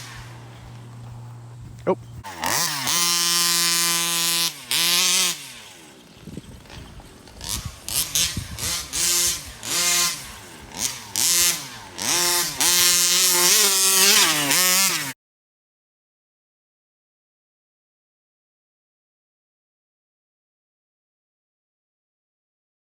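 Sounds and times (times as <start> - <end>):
two-stroke engine revving: 0.0 - 15.2.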